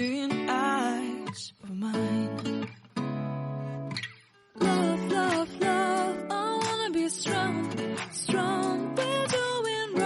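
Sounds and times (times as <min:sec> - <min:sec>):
person singing with vibrato: 0:00.0 - 0:02.5, 0:04.6 - 0:10.0
acoustic guitar: 0:00.0 - 0:10.0.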